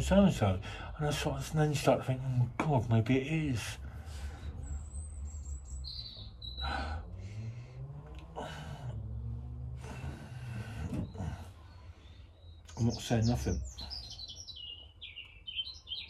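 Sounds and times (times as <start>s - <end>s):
low hum: 0.0s - 12.7s
small birds chirping: 0.0s - 16.0s.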